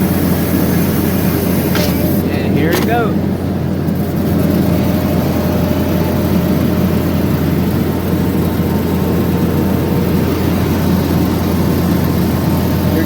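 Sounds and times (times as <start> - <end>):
diesel engine droning under load: 0.0 - 13.0.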